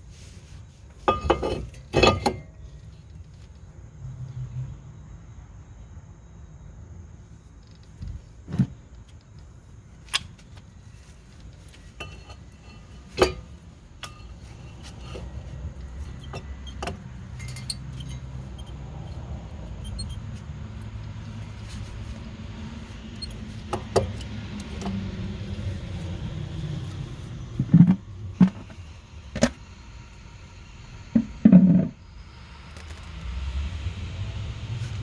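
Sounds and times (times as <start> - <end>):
low steady hum: 9.0 - 35.0
metallic clinks of tools: 14.0 - 20.2.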